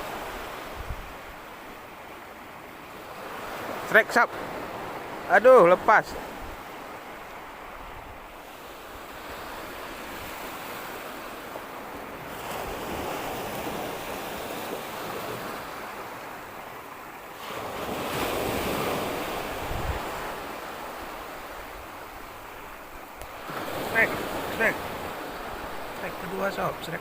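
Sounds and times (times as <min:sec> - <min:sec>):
sea waves breaking on beach: 0:00.0 - 0:27.0
wind buffeting microphone: 0:19.4 - 0:20.4.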